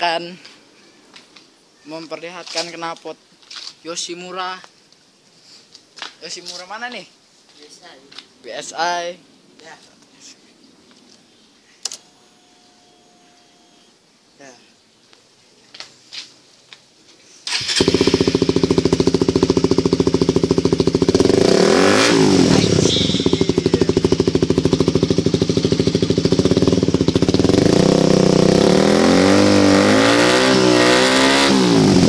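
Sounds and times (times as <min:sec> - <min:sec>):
motorcycle engine revving: 0:17.5 - 0:32.0.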